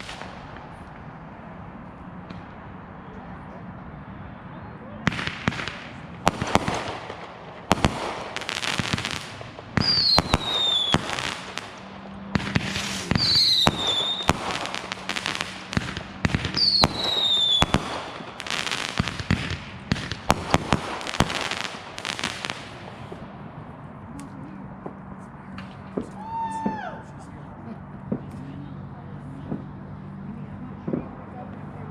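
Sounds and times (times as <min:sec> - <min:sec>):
firework crackling: 0:00.0 - 0:02.6, 0:05.0 - 0:26.6
firework bangs: 0:00.0 - 0:02.8, 0:05.0 - 0:23.8, 0:24.8 - 0:26.8
falling firework whistles: 0:09.8 - 0:11.7, 0:12.4 - 0:21.5.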